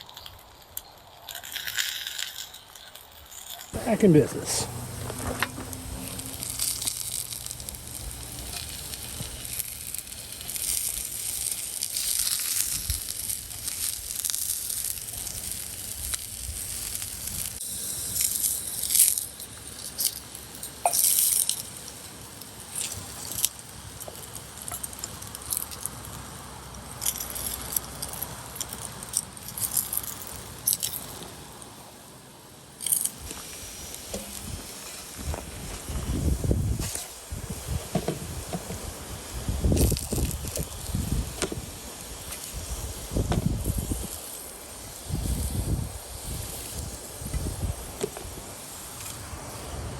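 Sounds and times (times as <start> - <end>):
small clicks and clinks: 0.0 - 3.8, 18.1 - 21.8, 27.0 - 31.3
food sizzling in a pan: 4.7 - 27.6, 36.2 - 49.8.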